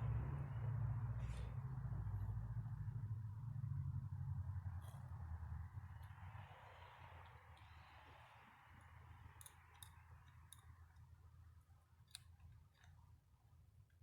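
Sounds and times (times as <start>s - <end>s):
low steady hum: 0.0s - 14.0s
small parts and tools clicking: 4.8s - 14.0s.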